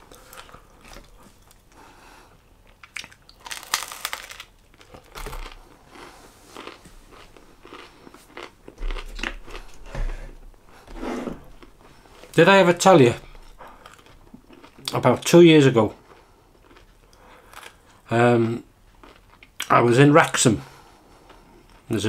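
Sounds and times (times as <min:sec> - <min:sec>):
man chewing with crunching bites: 0:00.0 - 0:10.9, 0:13.2 - 0:19.7.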